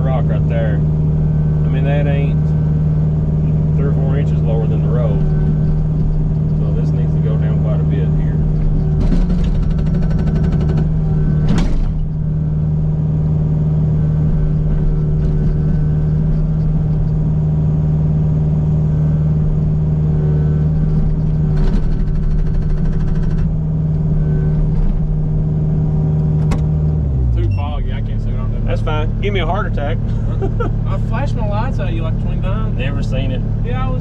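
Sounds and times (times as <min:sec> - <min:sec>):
excavator diesel engine running: 0:00.0 - 0:34.0
hydraulic hammer pounding rock: 0:08.6 - 0:12.1.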